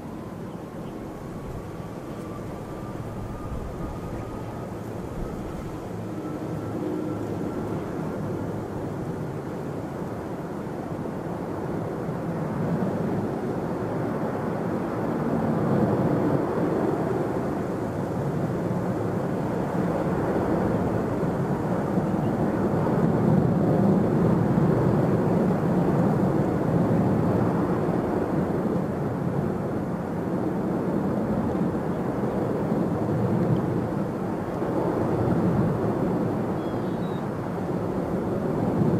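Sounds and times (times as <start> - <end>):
jet engines rumbling: 0.0 - 38.9.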